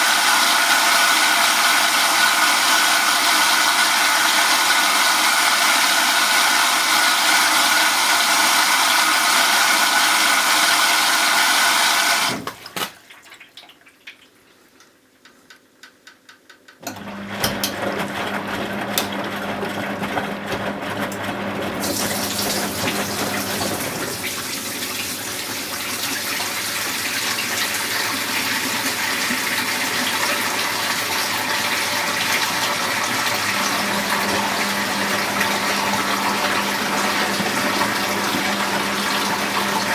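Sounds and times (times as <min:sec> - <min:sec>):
washing machine running: 0:00.0 - 0:12.8, 0:16.8 - 0:39.9
water rushing into machine: 0:00.0 - 0:13.0, 0:21.6 - 0:39.9
washing machine clicks: 0:15.2 - 0:17.8.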